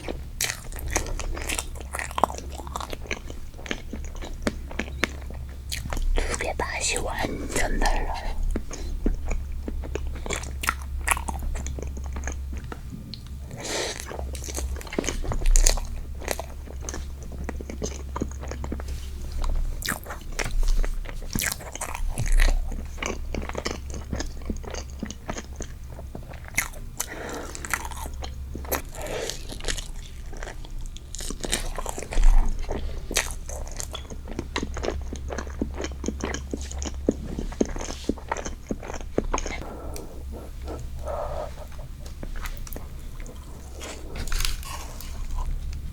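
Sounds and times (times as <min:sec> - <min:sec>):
person biting and chewing: 0:34.6 - 0:45.9.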